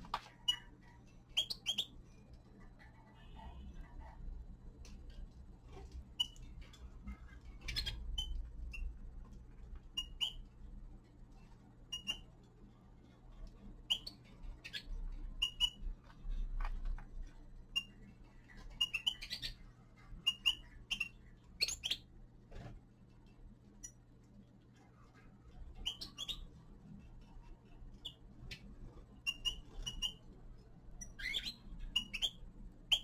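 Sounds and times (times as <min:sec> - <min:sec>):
finches chirping: 0:00.2 - 0:02.0, 0:06.1 - 0:06.6, 0:07.2 - 0:09.0, 0:09.8 - 0:10.5, 0:11.9 - 0:12.4, 0:13.8 - 0:16.0, 0:17.6 - 0:22.1, 0:25.6 - 0:26.6, 0:27.9 - 0:30.3, 0:30.9 - 0:33.0.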